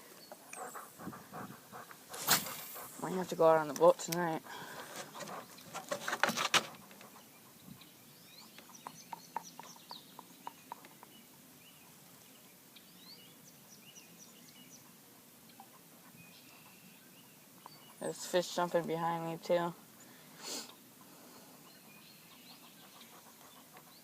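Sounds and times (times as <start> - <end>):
small birds chirping: 0.0 - 24.0
handling rustle: 4.6 - 7.1.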